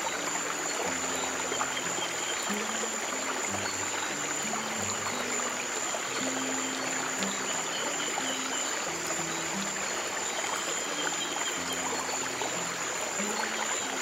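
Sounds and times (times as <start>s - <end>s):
stream water running: 0.0s - 14.0s.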